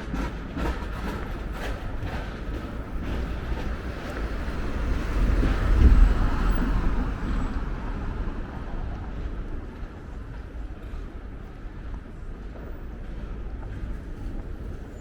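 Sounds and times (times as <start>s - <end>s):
urban background noise: 0.0s - 15.0s
vehicle passing by: 3.0s - 8.7s.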